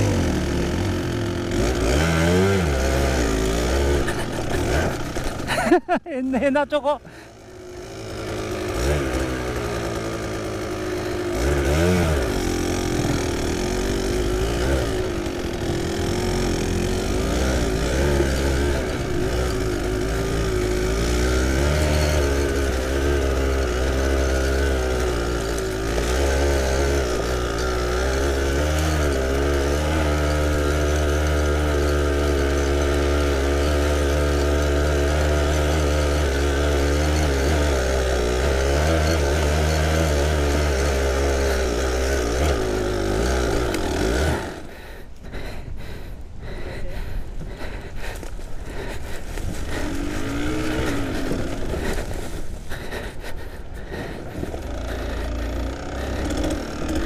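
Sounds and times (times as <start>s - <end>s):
two-stroke motorbike engine revving: 0.0s - 57.0s.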